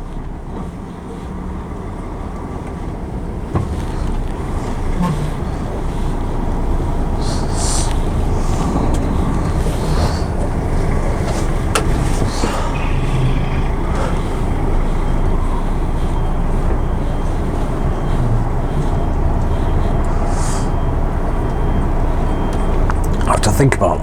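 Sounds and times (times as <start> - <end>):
diesel engine rumbling: 0.0 - 24.0
short hisses: 7.2 - 8.7, 20.1 - 20.8.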